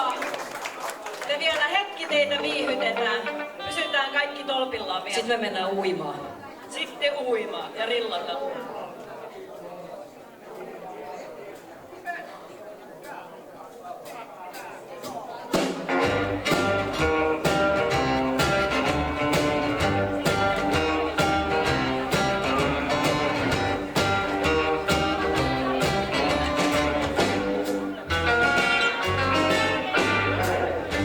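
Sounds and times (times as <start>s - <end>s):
rockabilly band playing: 1.2s - 5.5s, 15.4s - 31.0s.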